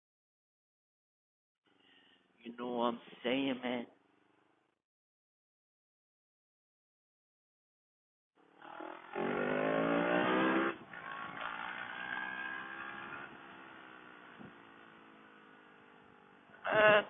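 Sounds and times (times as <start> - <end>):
motorcycle engine revving: 8.4 - 17.0.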